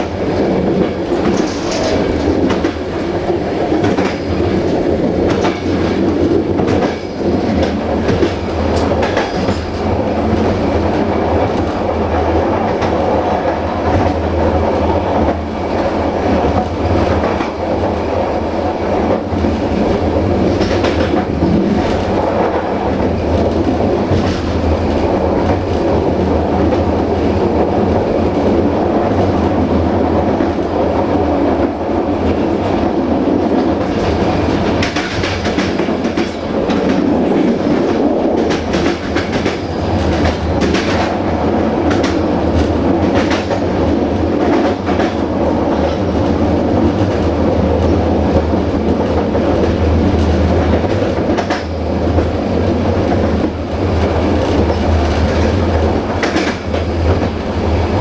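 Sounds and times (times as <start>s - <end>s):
train wheels rumbling on rails: 0.0s - 58.0s
wheels clicking over rail joints: 0.6s - 10.6s.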